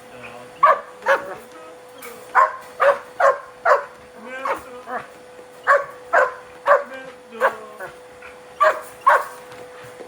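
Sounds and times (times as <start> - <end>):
dog barking sharply: 0.6 - 1.4, 2.3 - 4.6, 5.7 - 7.6, 8.6 - 9.4.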